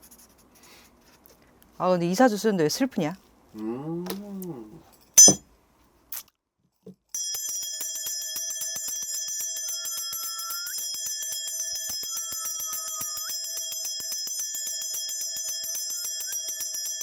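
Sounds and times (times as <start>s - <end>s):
held bell tone: 5.2s - 5.4s, 7.2s - 17.0s
bells jingling: 7.2s - 17.0s.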